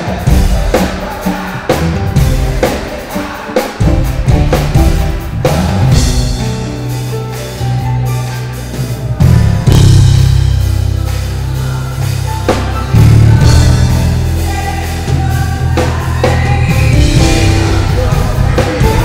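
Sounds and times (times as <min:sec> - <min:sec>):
drums and cymbals: 0:00.0 - 0:19.0
live band playing: 0:00.0 - 0:19.0
electric bass low notes: 0:03.8 - 0:19.0.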